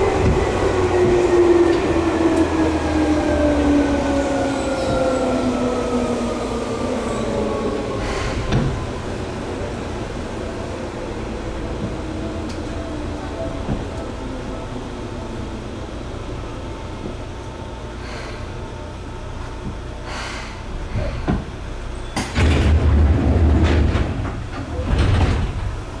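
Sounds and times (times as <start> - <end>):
train car low rumble: 0.0 - 26.0
train doors opening burst: 7.9 - 9.0, 19.6 - 25.9.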